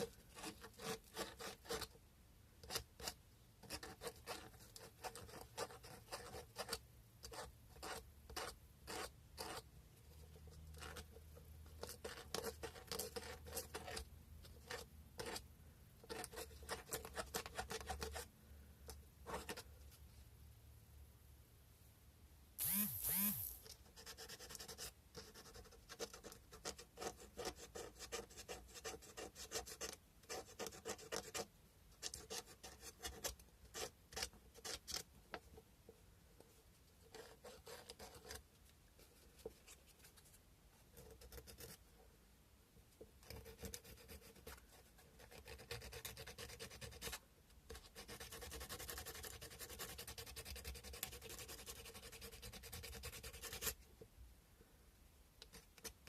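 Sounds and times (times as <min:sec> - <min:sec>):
sandpaper rubbing on bone: 0:22.6 - 0:23.6.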